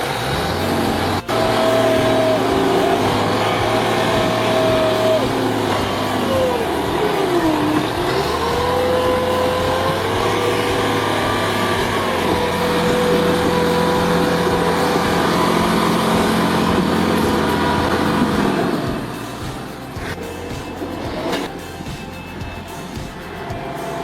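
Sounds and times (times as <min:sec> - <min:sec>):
engine running hard under load: 0:00.0 - 0:24.0.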